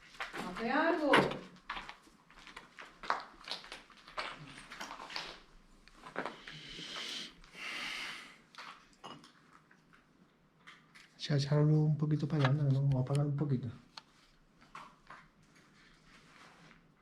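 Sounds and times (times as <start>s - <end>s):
breath-like hiss: 6.4s - 8.4s.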